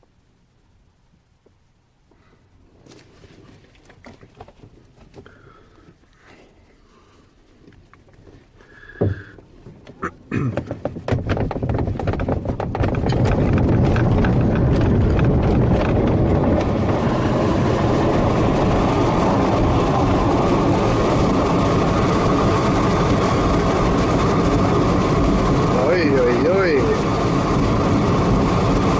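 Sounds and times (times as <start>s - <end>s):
knock: 9.0s - 9.3s, 10.4s - 14.8s
glider rattling and clattering: 10.5s - 16.9s
loud rush of air: 13.3s - 28.9s.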